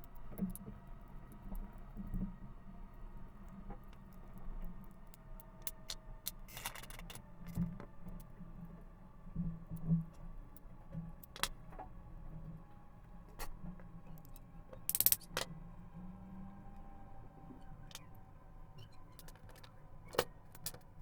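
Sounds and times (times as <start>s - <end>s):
small metal parts clicking: 5.6s - 7.6s, 11.2s - 11.6s, 14.2s - 15.5s, 19.2s - 20.8s.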